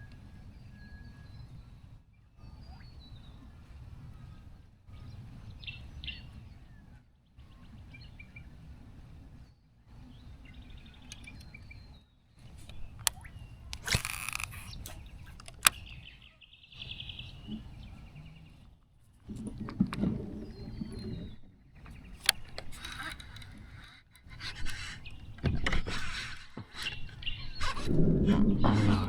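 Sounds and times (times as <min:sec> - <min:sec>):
birds chirping and calling: 0:10.0 - 0:18.7, 0:20.4 - 0:29.0
sharp clicks: 0:12.4 - 0:16.0, 0:21.9 - 0:28.4
low steady rumble: 0:27.9 - 0:29.0.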